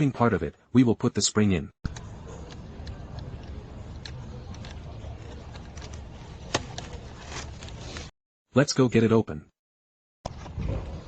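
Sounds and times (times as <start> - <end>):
plastic and metal parts clicking: 1.9 - 8.1.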